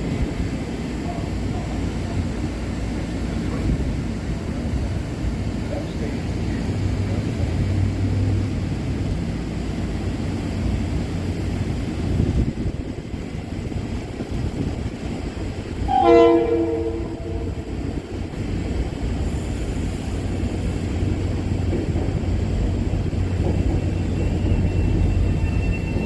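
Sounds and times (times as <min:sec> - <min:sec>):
train rumbling: 0:00.0 - 0:26.0
train horn blast: 0:15.9 - 0:18.0.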